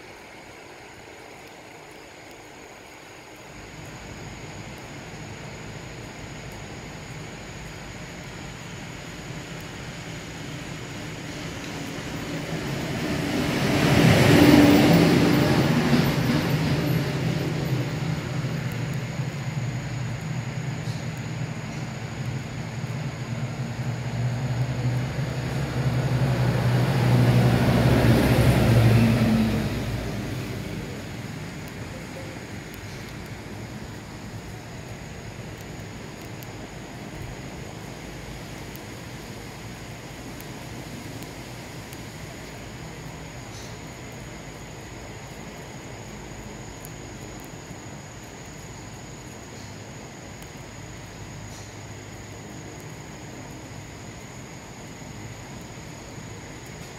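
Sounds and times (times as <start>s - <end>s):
insect chorus: 0.0s - 56.9s
vehicle engine passing by: 11.4s - 18.6s, 23.3s - 31.7s.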